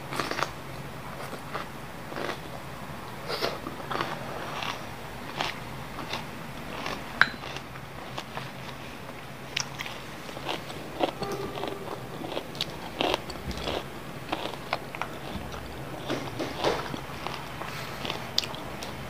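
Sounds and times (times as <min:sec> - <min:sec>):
person chewing and biting food: 0:03.4 - 0:08.8, 0:09.5 - 0:18.8.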